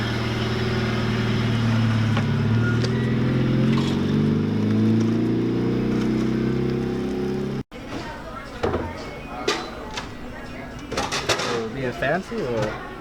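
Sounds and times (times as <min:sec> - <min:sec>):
car engine running: 0:00.0 - 0:07.6.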